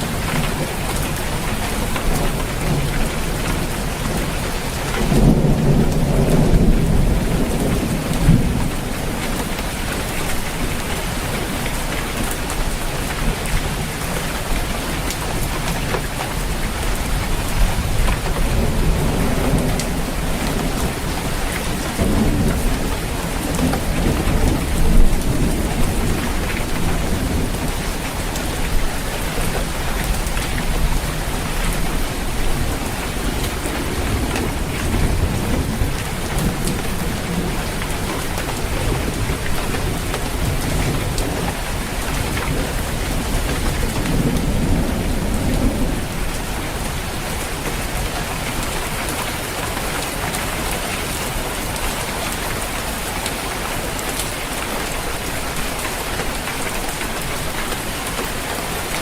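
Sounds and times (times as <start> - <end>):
thunder rumbling: 0.0 - 12.5, 16.3 - 48.6
rain falling on a roof: 0.0 - 59.0.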